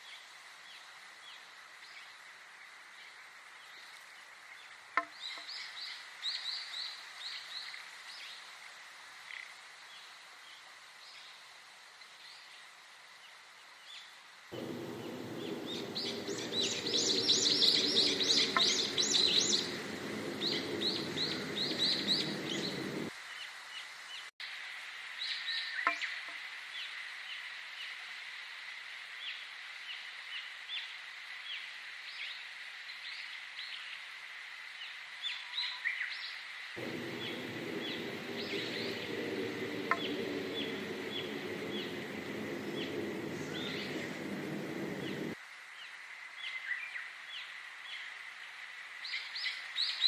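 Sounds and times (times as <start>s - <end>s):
low steady hum: 14.6s - 23.1s, 36.8s - 45.4s
small birds chirping and singing: 14.6s - 23.1s, 36.8s - 45.4s.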